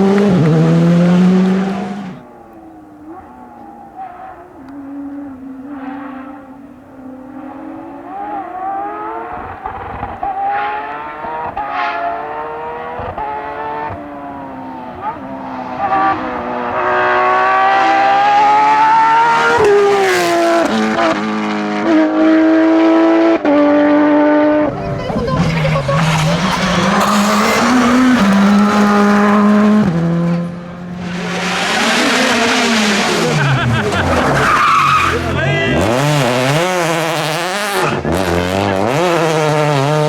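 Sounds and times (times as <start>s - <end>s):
rally car engine revving: 0.0s - 40.0s.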